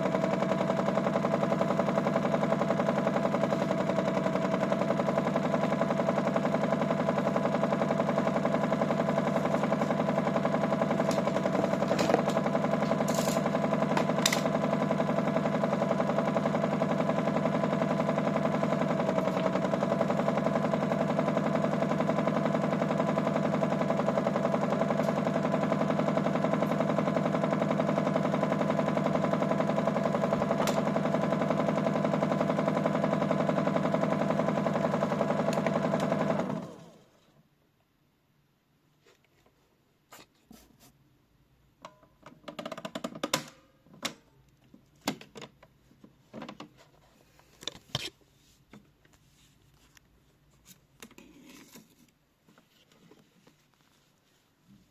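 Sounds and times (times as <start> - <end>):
toy washing machine motor rattling: 0.0 - 36.5.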